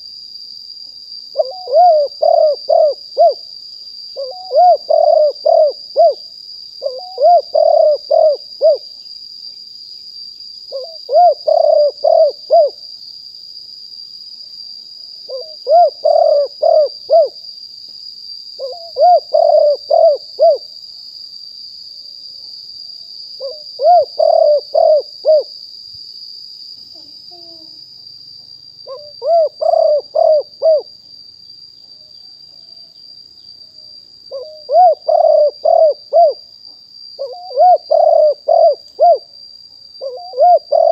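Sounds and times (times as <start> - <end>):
dove cooing: 1.3 - 3.4, 4.2 - 6.2, 6.8 - 8.8, 10.7 - 12.8, 15.3 - 17.4, 18.6 - 20.7, 23.4 - 25.5, 28.8 - 30.9, 34.3 - 36.4, 37.2 - 39.3, 40.0 - 40.9.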